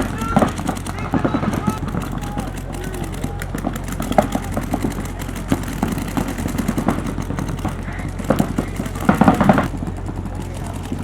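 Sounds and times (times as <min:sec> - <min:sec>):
low hum: 0:00.0 - 0:11.0
paintball markers popping: 0:00.0 - 0:11.0.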